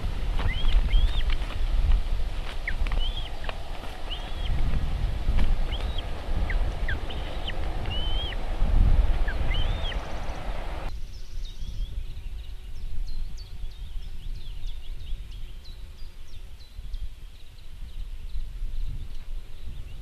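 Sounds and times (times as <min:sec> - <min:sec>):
birds whistling calls: 0:00.0 - 0:01.6, 0:02.3 - 0:12.5
low wind rumble: 0:00.0 - 0:20.0
short high bird chirps: 0:09.2 - 0:10.4.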